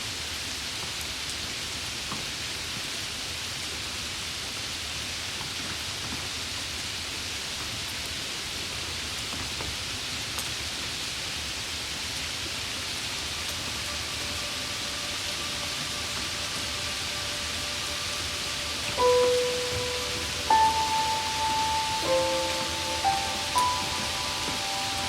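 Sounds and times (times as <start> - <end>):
waterfall rushing: 12.6 - 25.0.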